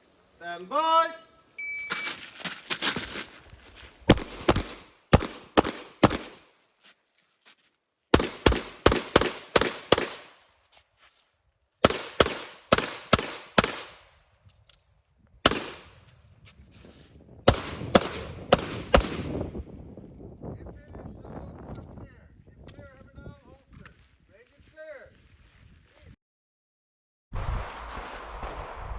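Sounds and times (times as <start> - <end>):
pistol shots: 4.1 - 6.5, 8.1 - 10.4, 11.8 - 14.1, 15.4 - 16.0, 17.5 - 19.4.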